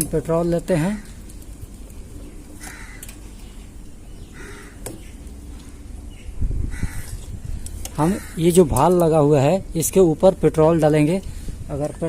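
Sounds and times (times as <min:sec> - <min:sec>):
crow cawing: 0:02.6 - 0:03.2, 0:04.2 - 0:05.0, 0:06.7 - 0:07.2, 0:08.0 - 0:08.7.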